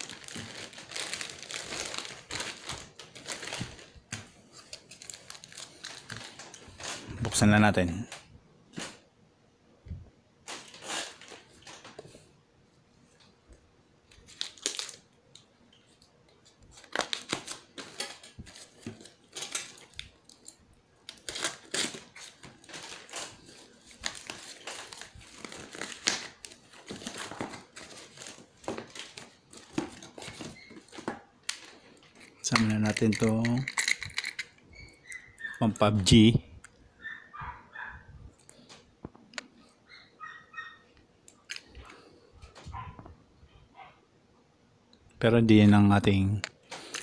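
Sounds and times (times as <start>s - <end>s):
packaging crinkling and tearing: 0.0s - 7.2s, 10.4s - 12.0s, 14.1s - 15.1s, 16.4s - 34.6s.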